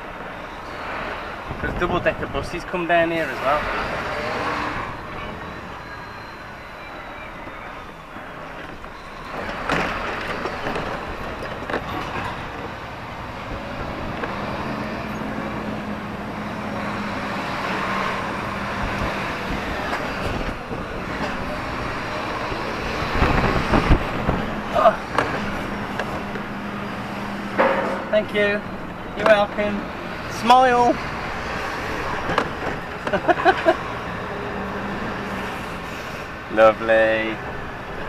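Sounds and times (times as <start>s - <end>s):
road noise: 0.0s - 38.0s
short knock: 27.6s - 28.1s.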